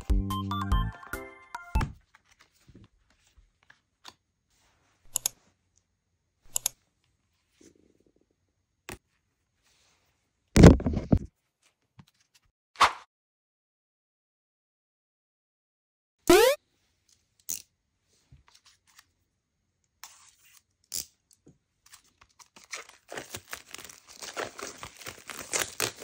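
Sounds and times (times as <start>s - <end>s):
album book rustling and knocking: 10.6s - 11.3s.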